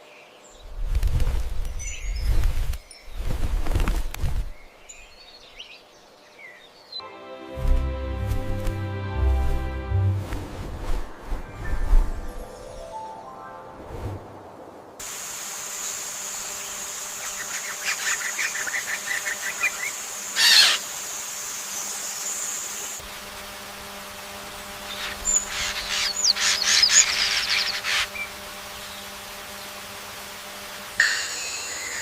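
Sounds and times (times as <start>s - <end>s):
high-pitched insect drone: 15.1s - 32.0s
rapid bird chirping: 24.8s - 29.8s.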